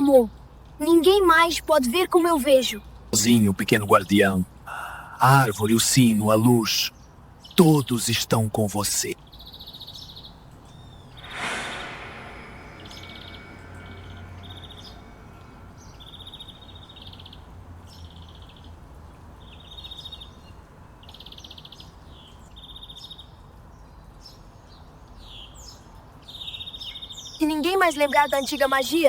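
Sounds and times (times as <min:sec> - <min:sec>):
birds chirping in trills: 0:05.4 - 0:23.0
sudden rush of noise: 0:10.6 - 0:18.3.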